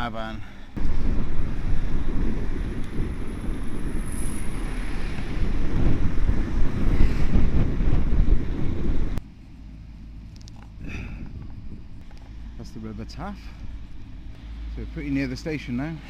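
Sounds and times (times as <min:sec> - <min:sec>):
wind buffeting microphone: 0:00.8 - 0:09.2, 0:10.8 - 0:12.1.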